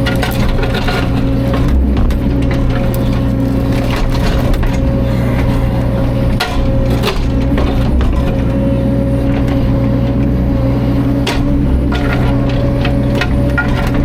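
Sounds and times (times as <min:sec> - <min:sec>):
wood knocking and cracking: 0:00.0 - 0:08.6, 0:11.2 - 0:14.0
excavator diesel engine running: 0:00.0 - 0:14.0.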